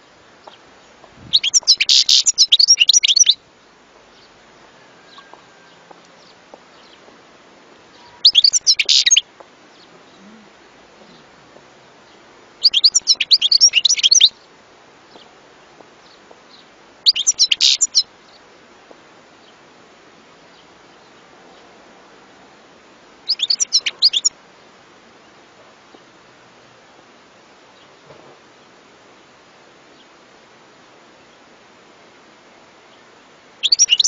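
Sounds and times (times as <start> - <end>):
bird twittering: 1.3 - 3.4, 7.9 - 9.2, 12.6 - 14.3, 17.1 - 18.0, 23.3 - 24.3, 33.6 - 34.0.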